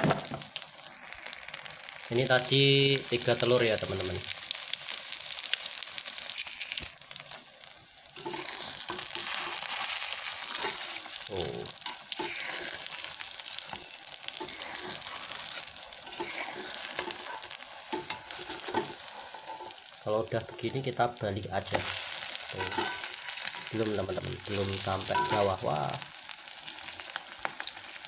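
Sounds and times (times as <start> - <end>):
hot oil sizzling: 0.0 - 28.0
metal spatula scraping a pan: 8.2 - 20.7, 21.7 - 23.8, 25.0 - 25.6.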